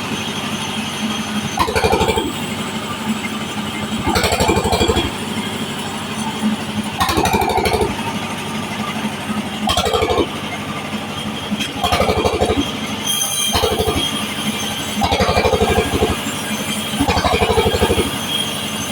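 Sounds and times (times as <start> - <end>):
band saw cutting wood: 1.4 - 8.1, 11.2 - 18.9.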